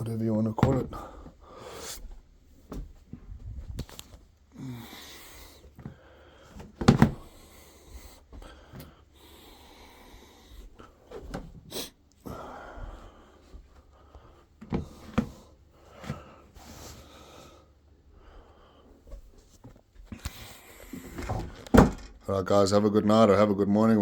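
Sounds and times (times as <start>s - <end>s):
clothes rustling: 0.0s - 22.3s
knocks and bumps: 0.5s - 1.4s, 6.6s - 7.4s, 21.0s - 22.3s.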